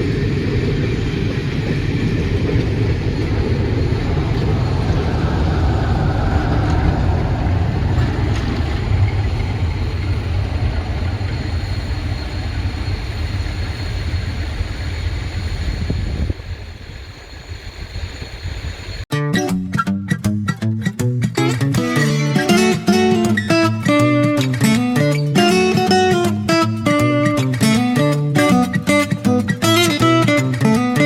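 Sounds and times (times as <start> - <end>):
train rumbling through station: 0.0 - 19.1, 21.4 - 31.0
guitar music: 19.1 - 31.0.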